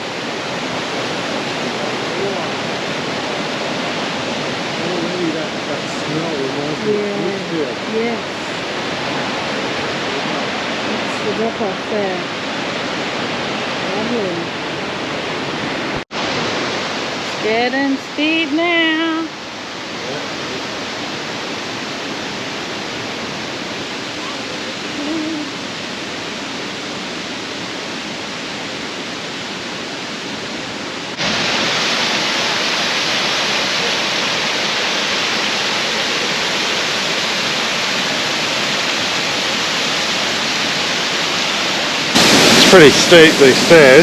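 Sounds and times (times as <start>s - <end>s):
waterfall roaring: 0.0s - 44.0s.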